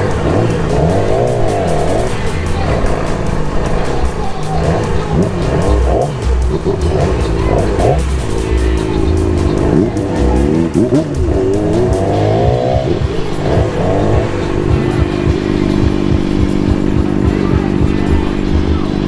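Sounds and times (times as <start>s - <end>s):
motorcycle engines revving: 0.0s - 19.0s
music playing: 0.0s - 19.0s.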